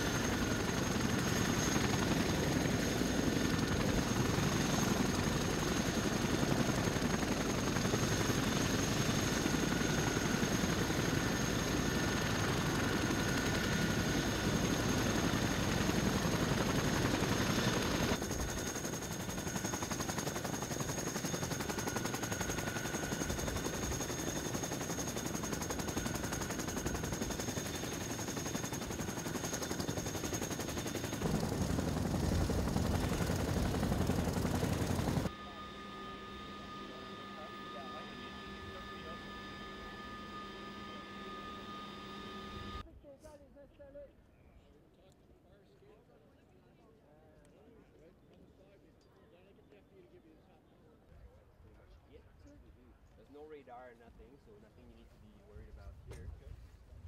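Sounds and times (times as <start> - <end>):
helicopter rotor chop: 0.0 - 42.8
helicopter turbine whine: 0.0 - 42.8.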